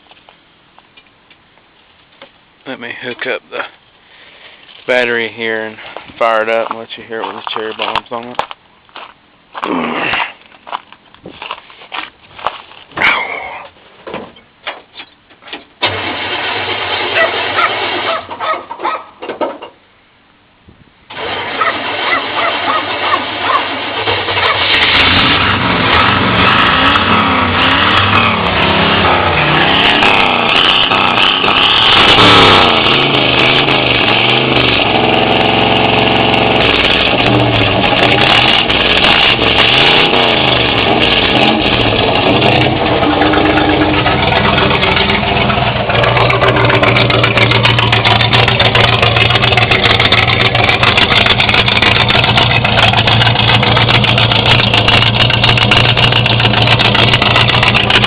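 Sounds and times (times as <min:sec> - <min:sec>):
pickup engine revving and idling: 0:21.2 - 0:58.0.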